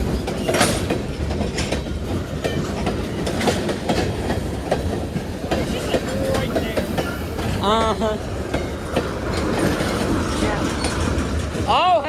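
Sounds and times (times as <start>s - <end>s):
train wheels rumbling on rail: 0.0s - 12.0s
wheels clanking over rail joints: 0.0s - 12.0s.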